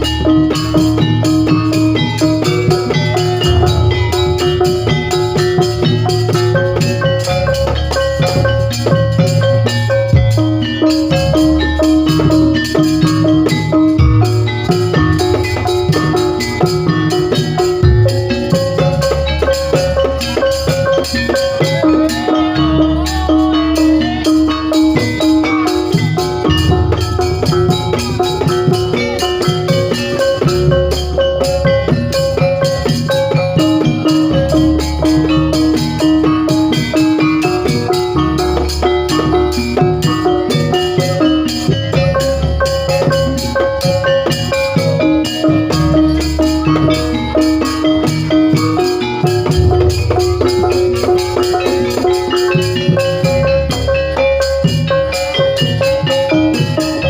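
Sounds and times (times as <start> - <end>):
drums: 0.0 - 57.0
gamelan metallophones ringing: 0.0 - 57.0
struck metal keyed instruments: 0.0 - 57.0
wavering melody: 0.0 - 57.0
heavy bass: 2.6 - 7.3, 26.0 - 28.7, 49.0 - 53.4.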